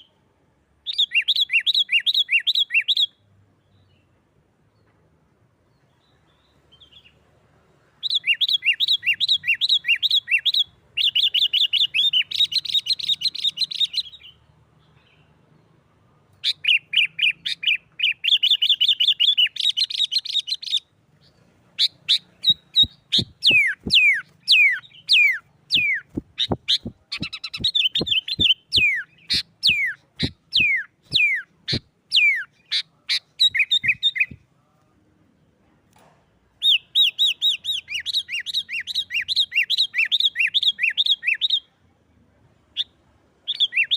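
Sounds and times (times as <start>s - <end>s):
bird chattering: 21.8s - 34.4s.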